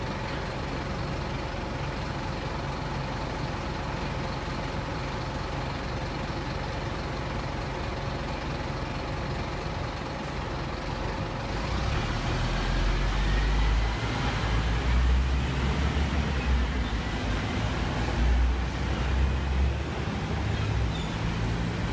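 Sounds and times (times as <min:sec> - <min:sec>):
bus engine rumbling: 0:00.0 - 0:21.9.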